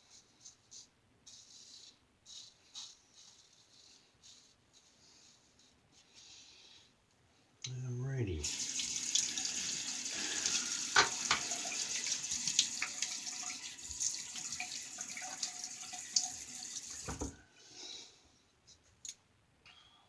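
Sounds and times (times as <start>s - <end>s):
tap water running into sink: 8.4s - 17.4s.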